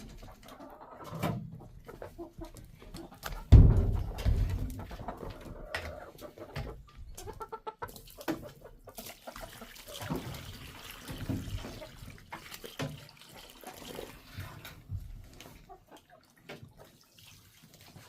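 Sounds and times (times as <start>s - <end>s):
chickens clucking: 0.0s - 17.1s.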